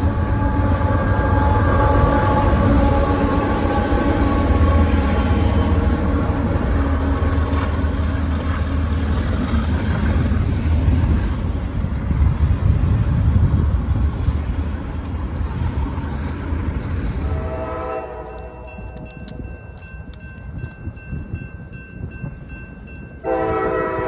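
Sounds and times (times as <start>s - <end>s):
container cars rumbling on rails: 0.0s - 24.0s
diesel locomotive engine drone: 0.0s - 24.0s.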